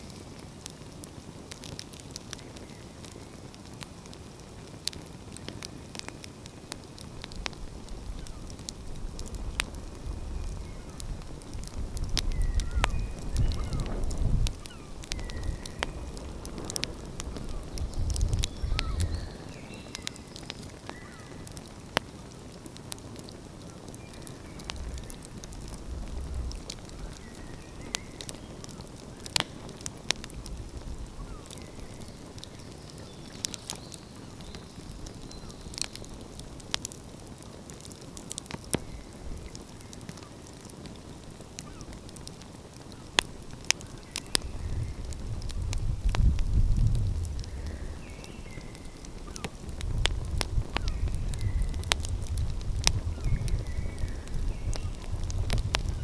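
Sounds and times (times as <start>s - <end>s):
wood fire crackling: 0.0s - 56.0s
low rumble: 24.6s - 27.2s.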